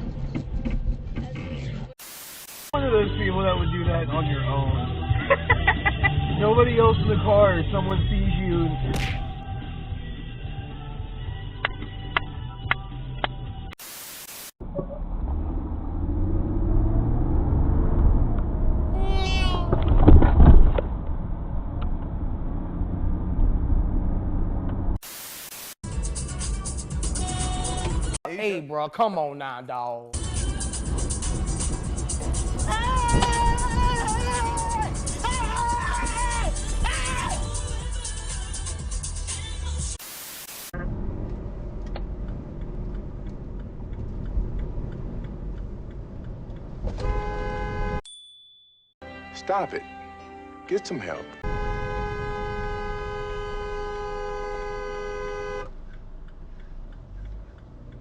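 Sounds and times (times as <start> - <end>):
car road rumble: 0.0 - 2.0, 2.8 - 13.8, 14.6 - 25.0, 30.2 - 39.8, 40.8 - 48.0, 51.4 - 58.0
static hiss: 2.0 - 2.8, 13.8 - 14.6, 25.0 - 25.8, 40.0 - 40.8.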